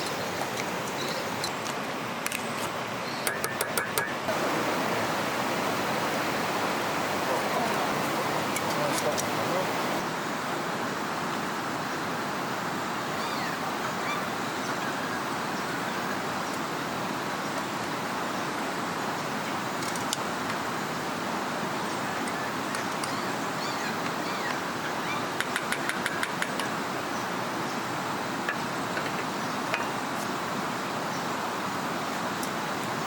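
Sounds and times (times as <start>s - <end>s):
flowing river water: 0.0s - 33.0s.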